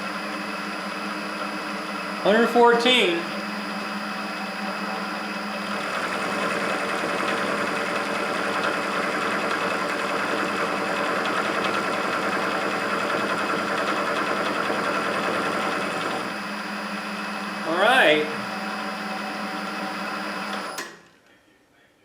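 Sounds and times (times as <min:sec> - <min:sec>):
motor hum: 0:00.0 - 0:20.8
milling machine cutting metal: 0:05.6 - 0:16.4.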